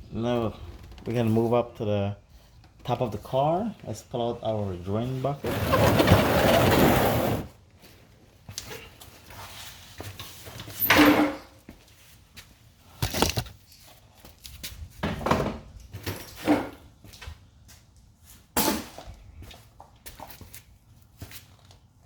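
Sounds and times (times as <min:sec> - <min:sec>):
bucket knocking and scraping: 0:05.4 - 0:07.5, 0:13.0 - 0:13.5.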